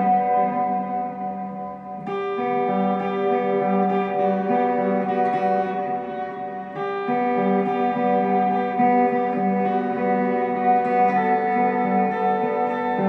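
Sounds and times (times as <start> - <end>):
guitar chords picked: 0.0 - 13.0.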